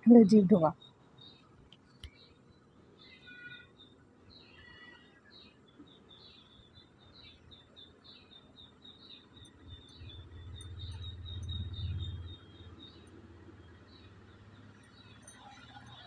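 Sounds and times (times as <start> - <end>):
small birds chirping: 0.0 - 16.0
low rumble: 10.0 - 12.4.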